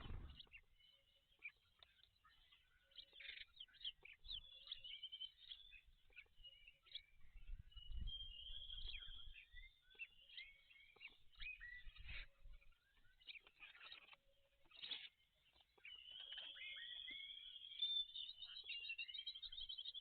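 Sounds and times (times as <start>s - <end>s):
low rumble: 0.0s - 0.4s
birds chirping and whistling: 0.0s - 1.6s, 2.4s - 20.0s.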